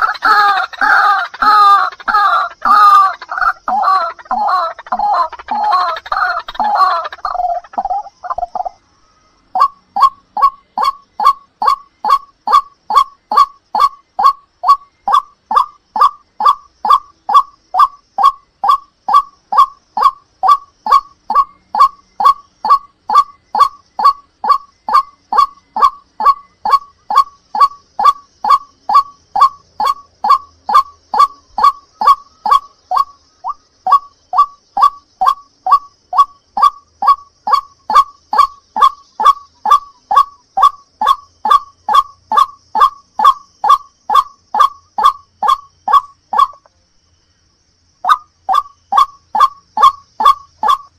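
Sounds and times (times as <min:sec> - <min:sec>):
waterhen honking call: 0:00.0 - 0:08.1.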